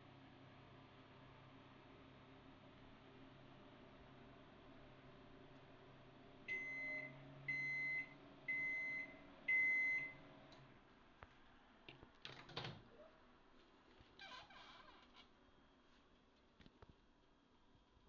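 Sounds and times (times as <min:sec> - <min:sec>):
microwave running hum: 0:00.0 - 0:18.0
microwave beeps: 0:06.5 - 0:10.3.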